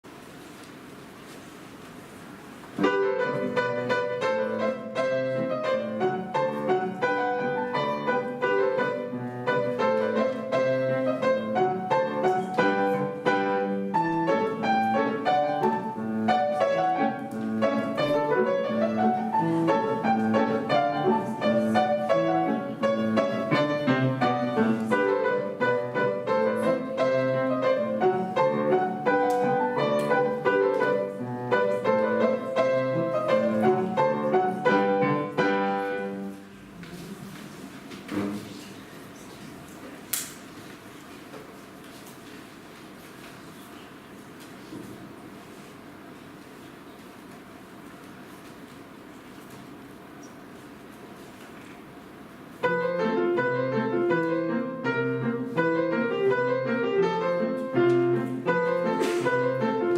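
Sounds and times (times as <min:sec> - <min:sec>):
piano duo classical piece: 0:02.3 - 0:40.1, 0:50.3 - 0:59.9.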